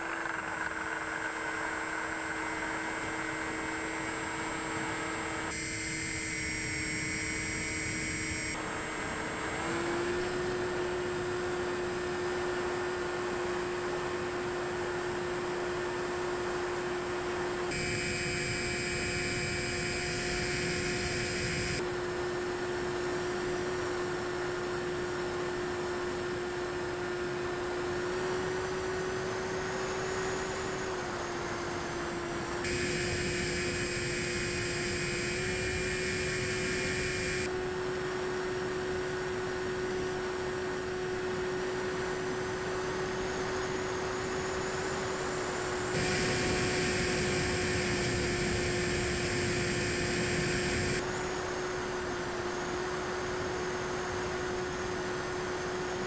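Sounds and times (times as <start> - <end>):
electric motor drone: 0.0 - 13.8, 17.5 - 56.0
high thin electronic tones: 17.7 - 21.8, 32.7 - 37.5, 46.0 - 51.0.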